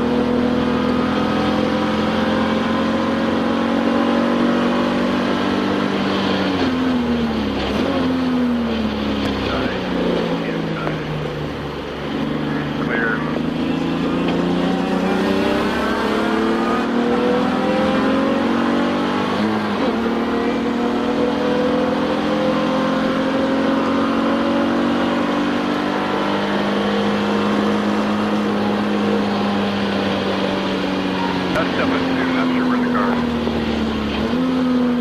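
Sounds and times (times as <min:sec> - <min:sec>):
race car engine accelerating: 0:00.0 - 0:35.0.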